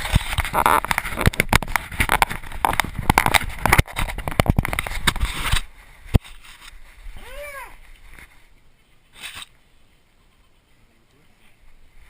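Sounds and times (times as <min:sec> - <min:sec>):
camera handling knocks and rattling: 0:00.0 - 0:06.7.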